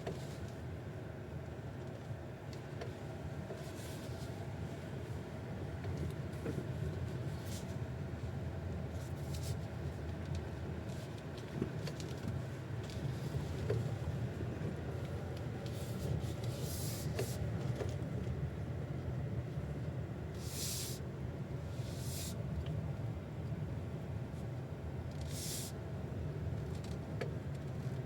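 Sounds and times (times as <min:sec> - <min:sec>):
road rumble inside car: 0:00.0 - 0:28.0.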